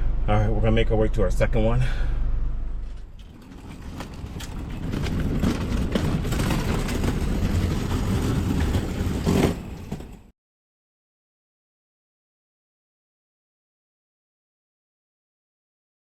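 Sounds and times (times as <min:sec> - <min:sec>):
car engine and road rumble: 0:00.0 - 0:10.3.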